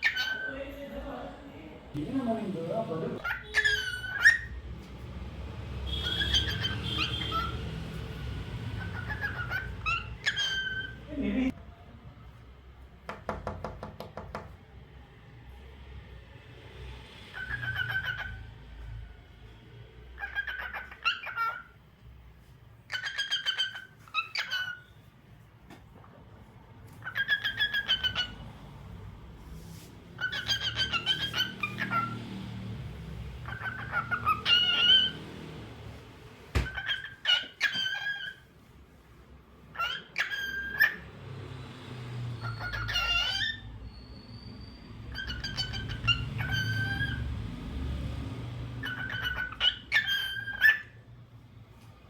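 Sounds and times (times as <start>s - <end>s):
cockatiel whistling and chirping: 0.0s - 0.5s, 3.2s - 4.6s, 5.9s - 7.6s, 8.8s - 11.0s, 17.3s - 18.4s, 20.2s - 21.7s, 22.9s - 25.0s, 27.0s - 28.4s, 30.2s - 32.2s, 33.4s - 35.2s, 36.6s - 38.4s, 39.7s - 41.0s, 42.4s - 47.2s, 48.8s - 51.0s
cockatiel whistled chirp: 42.4s - 47.2s.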